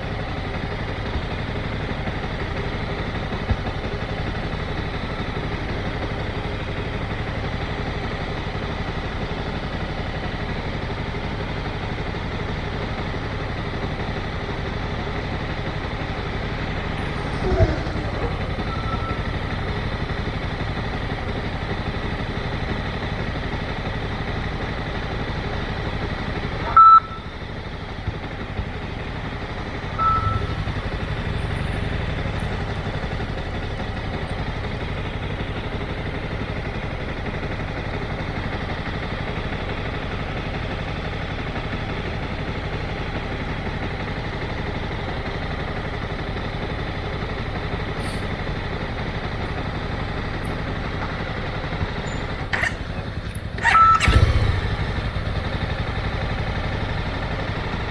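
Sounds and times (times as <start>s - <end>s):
motorcycle engine running: 0.0s - 57.9s
road and wind noise: 0.0s - 57.9s
loud beep: 18.6s - 19.4s, 26.6s - 27.3s, 30.0s - 30.6s, 53.6s - 54.4s.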